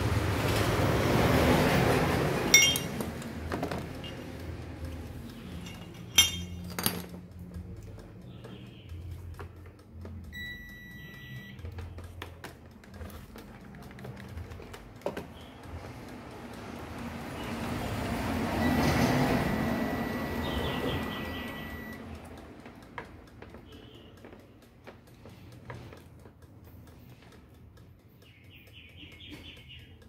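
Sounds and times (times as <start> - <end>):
passing vehicle rumble: 0.0 - 6.6, 15.6 - 22.6
metallic tool clinks and taps: 2.5 - 8.6
electronic beep: 10.3 - 11.6, 18.6 - 22.1.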